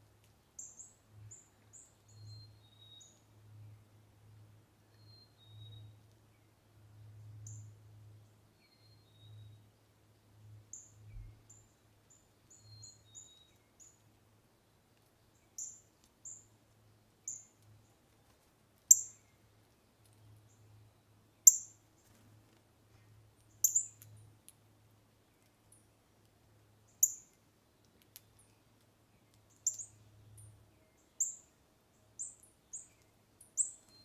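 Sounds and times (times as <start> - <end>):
small birds chirping: 0.5 - 3.7, 10.7 - 14.2, 14.9 - 16.6, 17.2 - 22.3, 22.9 - 24.3, 26.8 - 34.0.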